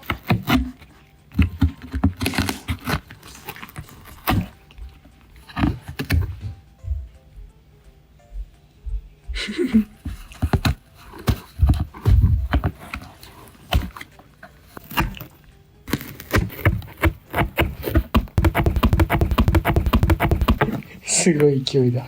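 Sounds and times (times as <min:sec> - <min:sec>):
cat biting and tearing cardboard: 0:00.0 - 0:06.4, 0:09.9 - 0:21.0.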